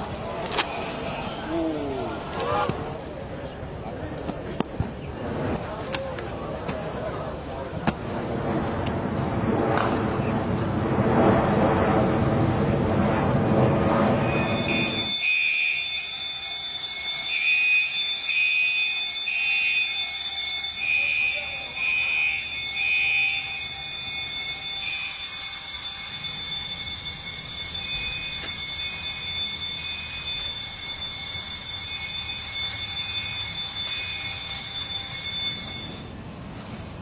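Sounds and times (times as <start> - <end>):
pulsing alarm tone: 13.9 - 36.2
alarm ringing tones: 14.0 - 36.2.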